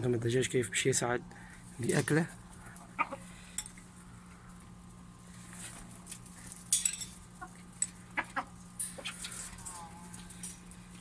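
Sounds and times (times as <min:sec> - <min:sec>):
hens pecking: 0:01.6 - 0:11.0
hens clucking: 0:02.4 - 0:04.0, 0:07.2 - 0:11.0.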